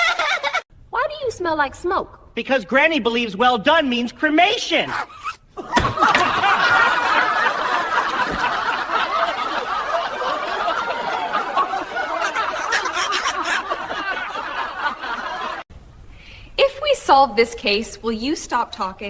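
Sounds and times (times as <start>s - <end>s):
people laughing: 0.0s - 0.6s, 4.9s - 15.6s.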